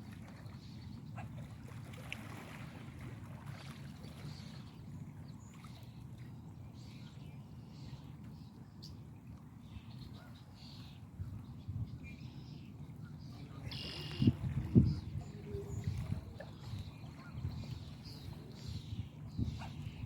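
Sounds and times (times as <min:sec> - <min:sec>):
faint bird chirps: 0:13.1 - 0:20.0.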